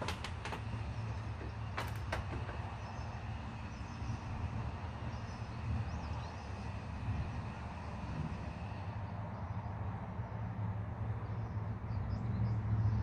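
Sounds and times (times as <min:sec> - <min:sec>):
sharp clicks: 0:00.0 - 0:02.7.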